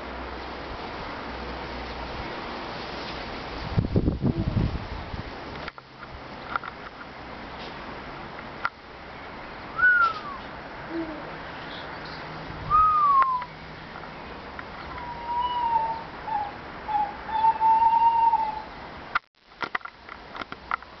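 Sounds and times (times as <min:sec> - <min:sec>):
whistled bird calls: 0:09.8 - 0:10.5, 0:12.7 - 0:13.6, 0:14.9 - 0:18.8.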